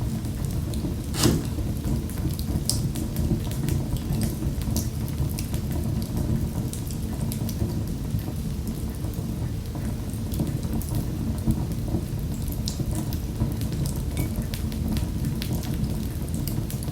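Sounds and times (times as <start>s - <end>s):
wood fire crackling: 1.0s - 2.0s.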